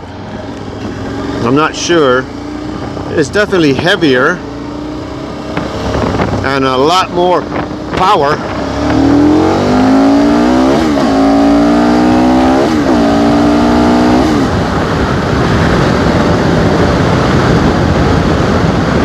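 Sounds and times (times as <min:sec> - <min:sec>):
motorcycle engine accelerating: 0:00.0 - 0:19.0
wind and road noise: 0:00.0 - 0:19.0.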